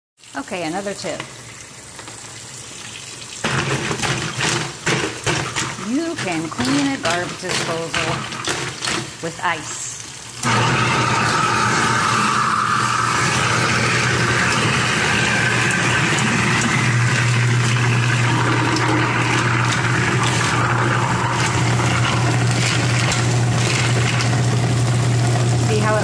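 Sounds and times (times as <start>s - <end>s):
garbage disposal grinding ice: 3.4s - 26.0s.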